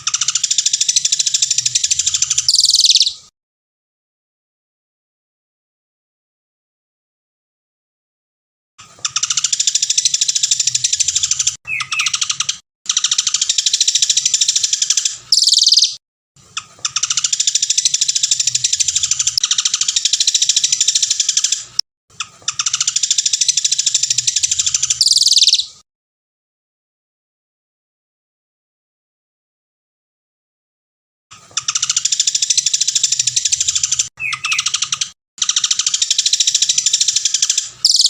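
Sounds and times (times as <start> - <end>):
songbird rapid trills: 31.6 - 38.0.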